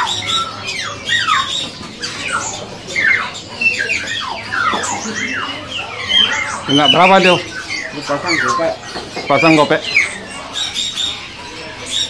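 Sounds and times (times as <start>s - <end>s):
caged birds squawking: 0.0s - 12.0s.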